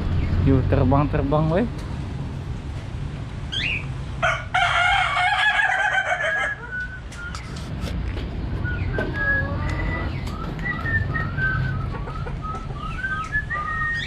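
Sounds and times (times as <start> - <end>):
rooster crowing: 4.2 - 6.7.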